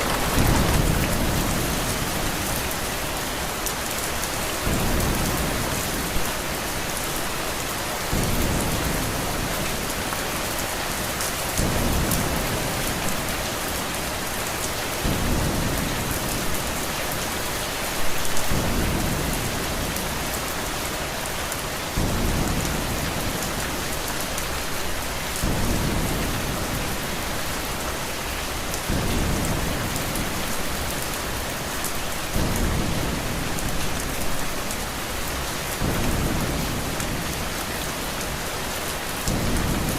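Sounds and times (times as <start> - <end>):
thunder rumbles: 0.0 - 6.5, 8.0 - 13.9, 15.0 - 17.0, 39.2 - 39.9
heavy rain on a window: 0.0 - 39.9.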